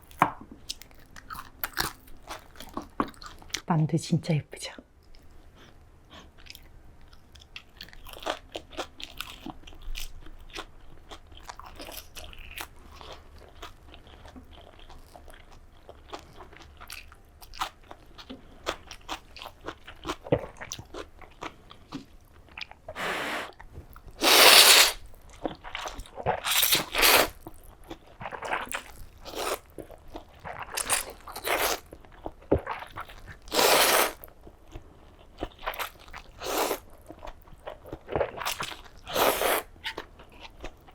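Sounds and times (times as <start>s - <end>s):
loud crunching bites: 24.2s - 25.0s, 26.4s - 27.4s.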